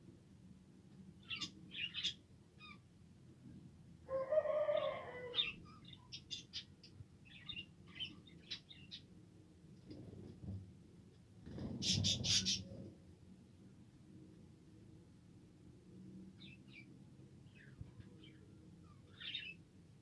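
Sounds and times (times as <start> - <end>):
budgerigars chirping: 11.8 - 12.6.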